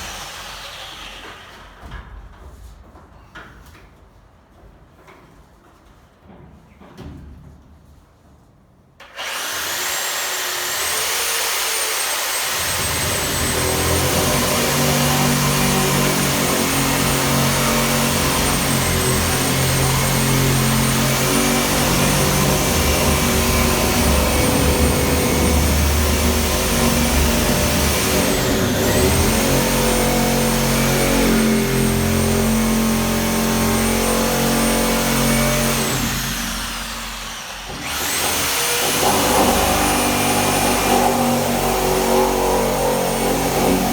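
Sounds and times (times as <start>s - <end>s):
power tool motor whining: 9.0s - 43.9s.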